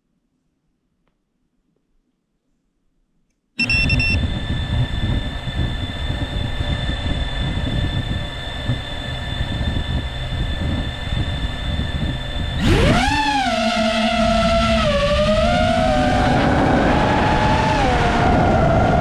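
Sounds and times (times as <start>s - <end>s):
drone motors high whine: 3.6s - 19.0s
heavy wind rumble: 4.1s - 13.2s, 14.3s - 19.0s.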